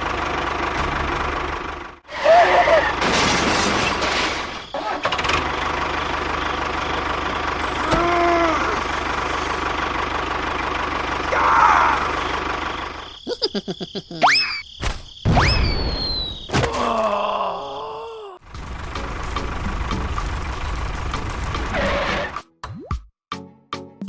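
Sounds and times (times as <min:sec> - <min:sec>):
small engine running: 0:04.8 - 0:13.2.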